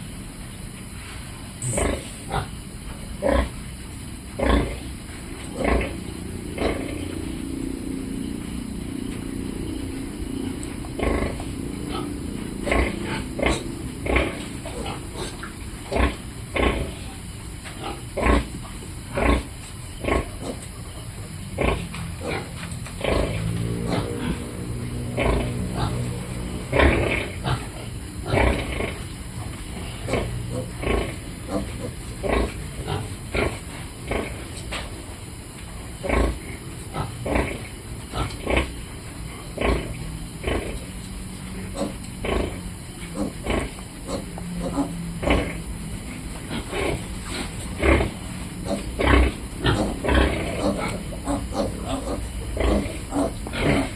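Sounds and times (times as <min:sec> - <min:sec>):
pigs grunting: 0:01.6 - 0:03.6, 0:04.3 - 0:35.1, 0:35.8 - 0:53.9
piglets calling: 0:41.6 - 0:45.7, 0:46.5 - 0:53.9.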